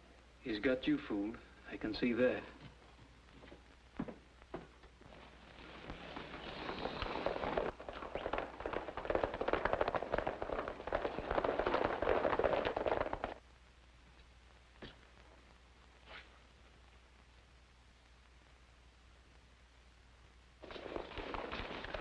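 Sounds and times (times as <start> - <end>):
horses galloping: 3.4 - 13.4, 20.6 - 22.0.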